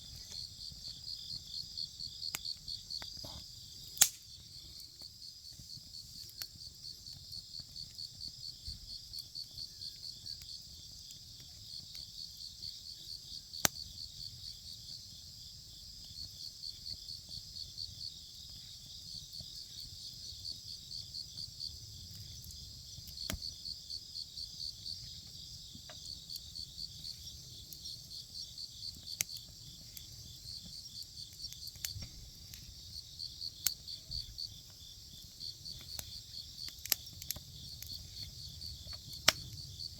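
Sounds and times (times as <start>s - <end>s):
wood fire crackling pops: 0.0s - 14.6s, 15.4s - 39.9s
crickets chirping: 0.0s - 39.9s.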